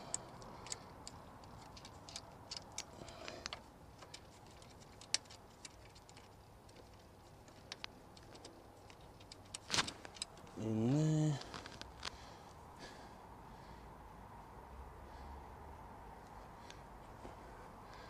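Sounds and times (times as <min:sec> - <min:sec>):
clicks of small metal parts: 0:00.0 - 0:10.6.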